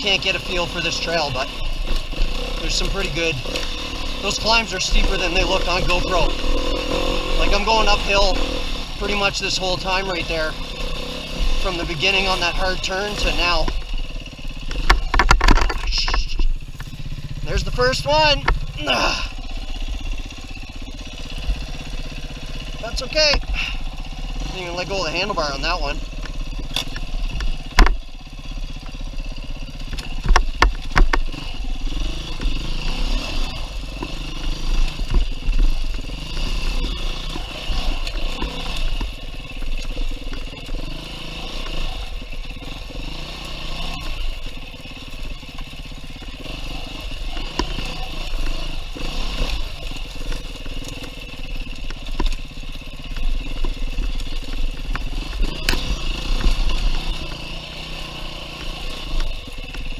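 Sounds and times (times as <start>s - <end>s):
dirt bike engine revving: 0.0s - 59.9s
bike knocking and clattering: 12.0s - 18.9s, 26.1s - 28.1s, 28.7s - 44.3s.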